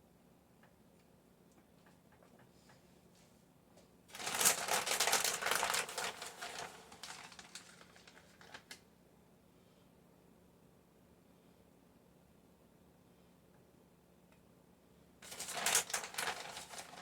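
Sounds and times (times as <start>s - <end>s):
packaging crinkling and rustling: 4.1s - 8.8s, 15.2s - 17.0s.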